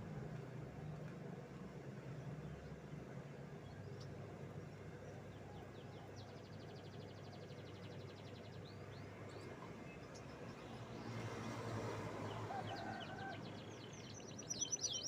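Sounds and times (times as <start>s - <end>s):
canary singing: 14.1s - 15.0s.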